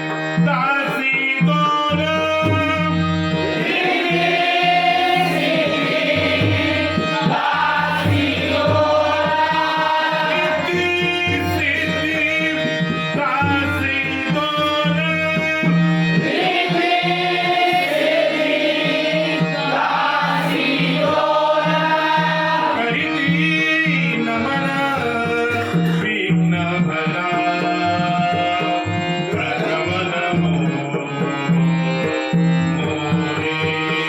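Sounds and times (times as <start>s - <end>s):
harmonium: 0.0s - 34.0s
hand drums: 2.0s - 12.3s
voices singing: 3.3s - 25.4s.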